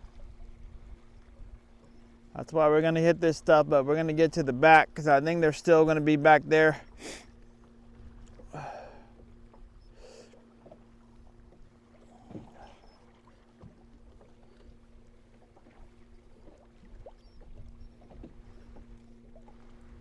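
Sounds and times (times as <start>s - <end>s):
wind and water rumble: 0.0s - 20.0s
light knocks on boat: 12.2s - 12.7s, 13.6s - 14.3s.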